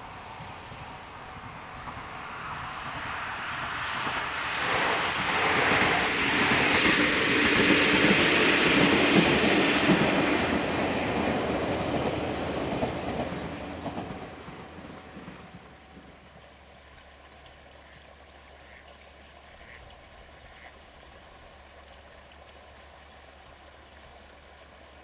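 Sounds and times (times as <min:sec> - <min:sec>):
train passing by: 0:00.0 - 0:18.3.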